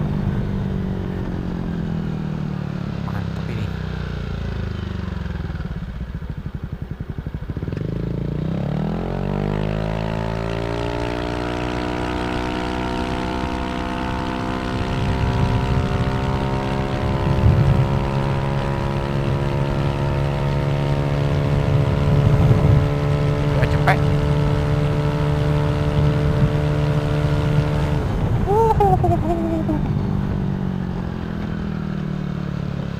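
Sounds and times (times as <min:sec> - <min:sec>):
scooter engine revving: 0:21.0 - 0:31.0.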